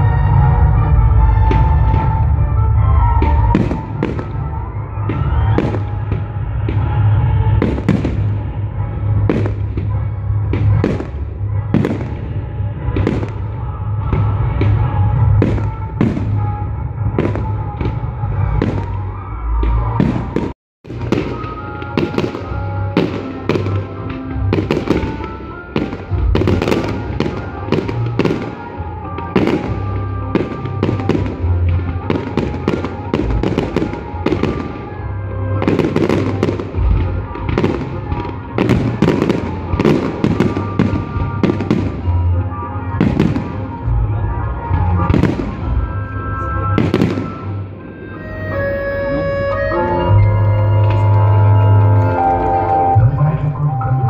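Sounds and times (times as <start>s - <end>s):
fireworks bursting and crackling: 0.0s - 53.4s
music with held tones: 21.0s - 54.0s.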